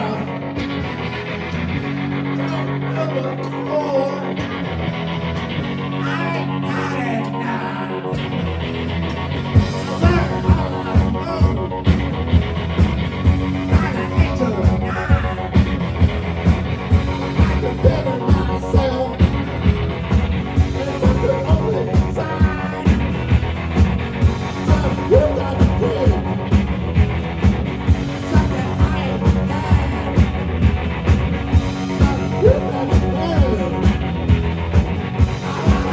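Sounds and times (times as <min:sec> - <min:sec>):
rock band playing: 0:00.0 - 0:06.6, 0:08.0 - 0:35.9
bass guitar: 0:00.0 - 0:35.9
electric guitar: 0:00.0 - 0:35.9
steady drum beat: 0:09.6 - 0:35.9
person singing: 0:17.2 - 0:19.8, 0:20.6 - 0:23.4, 0:24.5 - 0:26.6, 0:28.1 - 0:30.6, 0:31.8 - 0:34.2, 0:35.2 - 0:35.9.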